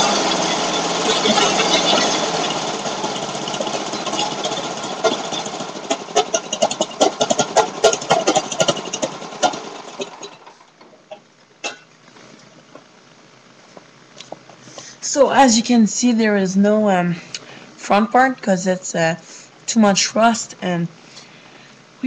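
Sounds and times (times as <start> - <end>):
engine sputtering with pops: 0.0 - 12.9.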